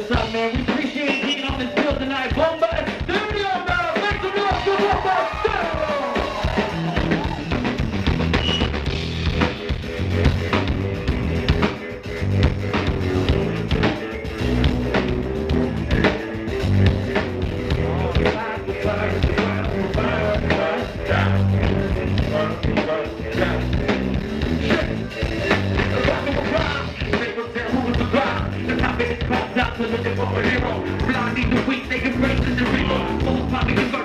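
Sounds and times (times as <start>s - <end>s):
live rock band playing: 0.0s - 34.0s.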